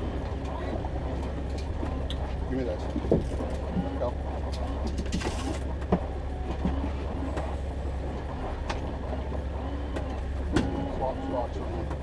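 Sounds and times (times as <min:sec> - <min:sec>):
boat motor droning: 0:00.0 - 0:12.0
light knocks and clicks of gear: 0:08.2 - 0:12.0.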